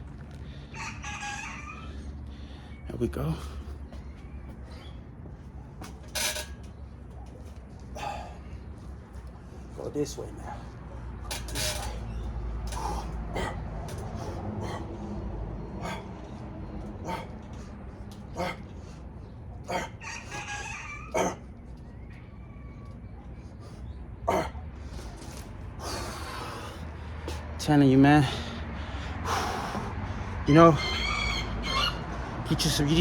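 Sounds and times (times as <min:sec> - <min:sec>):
rooster crowing: 0:00.6 - 0:02.2, 0:19.7 - 0:23.0, 0:30.7 - 0:32.2.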